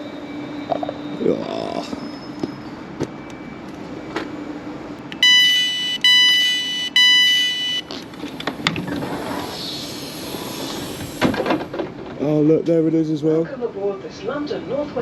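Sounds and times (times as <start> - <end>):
train door warning beeps: 0.0 - 9.4.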